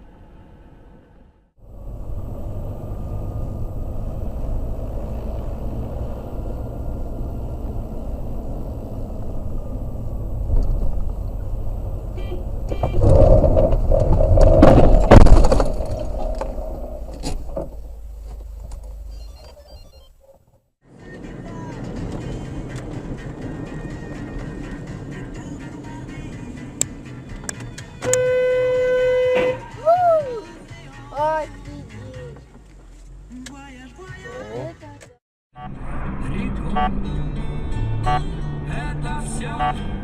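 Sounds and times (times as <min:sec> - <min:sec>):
car road and engine noise: 0:00.0 - 0:40.0.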